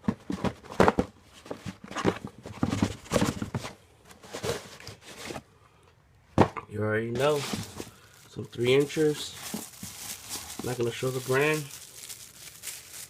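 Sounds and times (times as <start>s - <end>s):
knocks and thuds of handled box: 0.0s - 5.4s, 6.4s - 6.6s, 7.2s - 8.0s.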